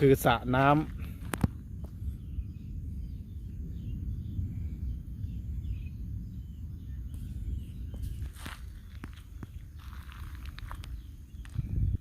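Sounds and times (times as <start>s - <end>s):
steady low rumble: 0.0s - 12.0s
faint bird chirps: 1.9s - 12.0s.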